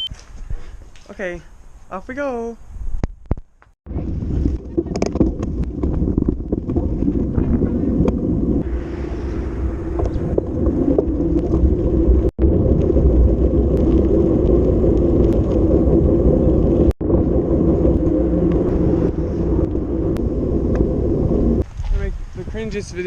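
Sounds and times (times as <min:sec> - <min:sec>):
wind buffeting microphone: 0:02.6 - 0:23.0.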